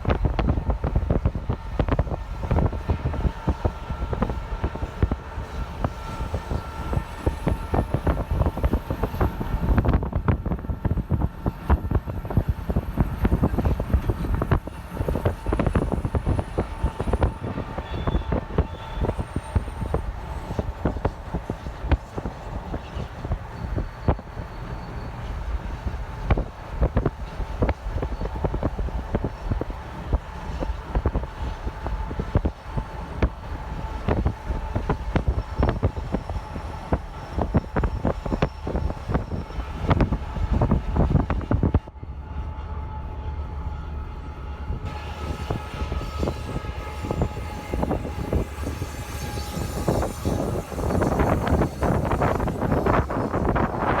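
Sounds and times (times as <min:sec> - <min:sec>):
train wheels clattering on rails: 0:00.0 - 0:41.9
train rumble: 0:00.0 - 0:54.0.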